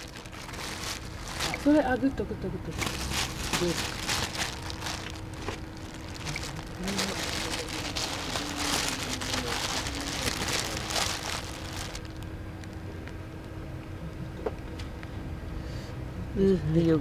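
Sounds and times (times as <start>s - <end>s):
air filter rustling and crackling: 0.0s - 1.9s, 2.7s - 12.3s.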